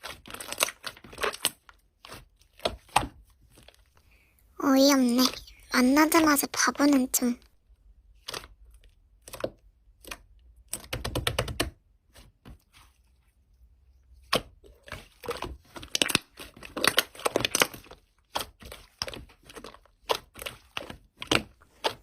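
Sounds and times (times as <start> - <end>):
slime clicking and crackling: 0.0 - 3.8, 8.2 - 11.8, 14.2 - 22.0.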